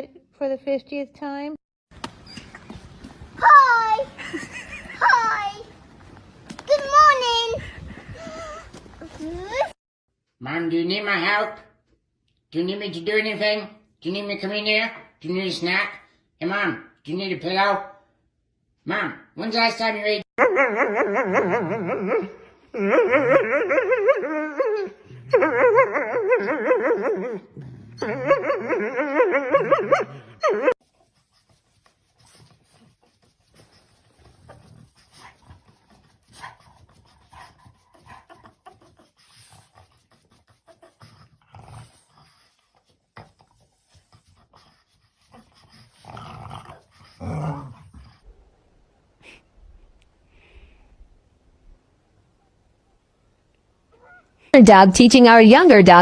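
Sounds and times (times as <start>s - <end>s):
dog whining and howling: 20.4s - 30.8s.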